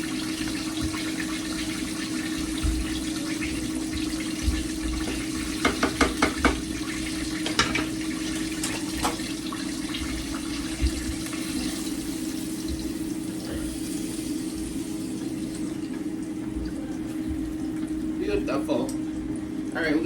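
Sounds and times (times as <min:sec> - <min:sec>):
chicken sizzling in hot oil: 0:00.0 - 0:20.0.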